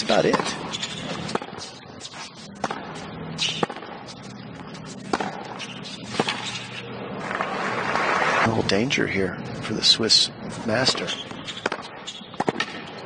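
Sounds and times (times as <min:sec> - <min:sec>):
tennis ball hit with rackets: 0:00.0 - 0:06.8, 0:10.8 - 0:12.9.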